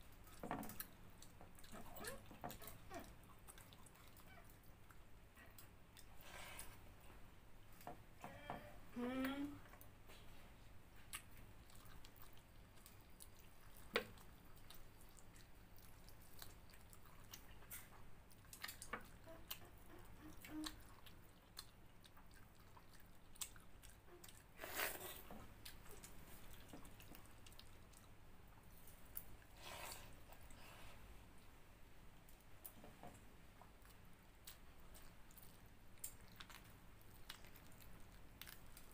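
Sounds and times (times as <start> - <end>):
person chewing food: 0.0 - 7.9, 9.7 - 31.6, 32.2 - 38.9
wet squishing: 11.0 - 30.6, 33.7 - 38.9.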